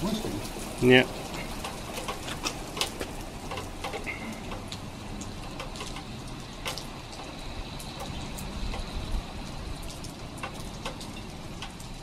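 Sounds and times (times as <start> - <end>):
rain hiss: 0.0 - 12.0
raindrops ticking on surfaces: 0.0 - 12.0.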